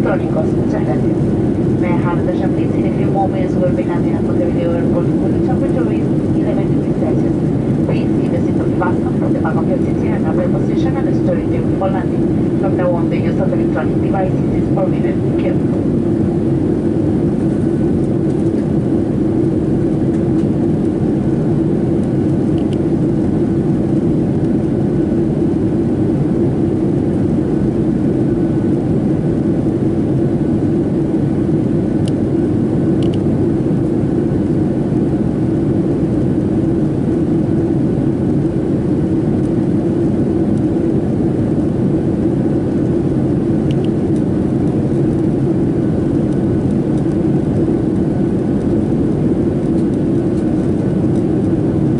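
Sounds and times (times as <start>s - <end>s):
airflow rushing: 0.0s - 26.0s
faint steady whine: 0.0s - 51.9s
jet engine hum: 0.0s - 51.9s.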